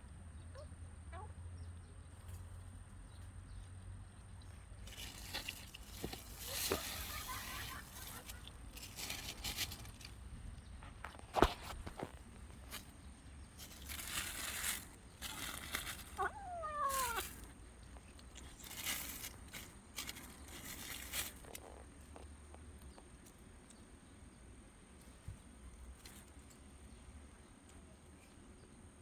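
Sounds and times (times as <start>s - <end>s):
rustling and crunching: 4.5s - 28.5s
cat meowing: 16.2s - 17.4s.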